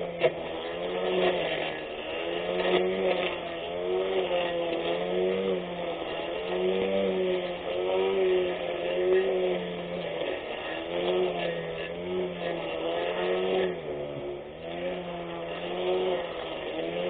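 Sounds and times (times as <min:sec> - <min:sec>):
electric grass cutter whining: 0:00.0 - 0:17.0.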